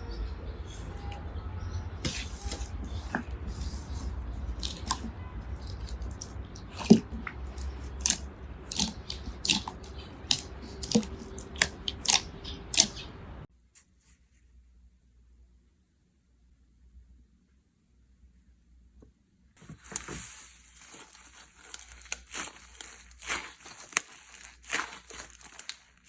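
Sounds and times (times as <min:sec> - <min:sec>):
slime clicking and popping: 0:04.6 - 0:13.0, 0:21.6 - 0:25.8.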